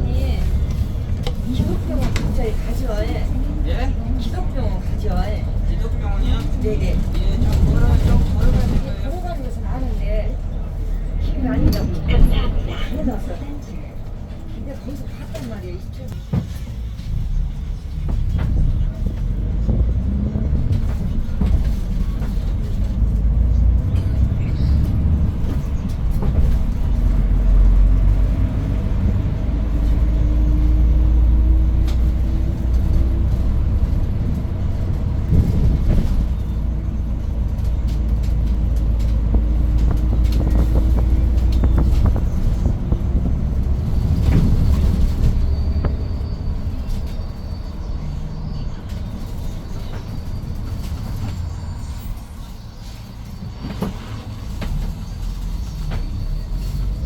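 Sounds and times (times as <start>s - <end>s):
bus engine rumbling: 0.0s - 57.0s
rattles and knocks: 17.9s - 47.3s.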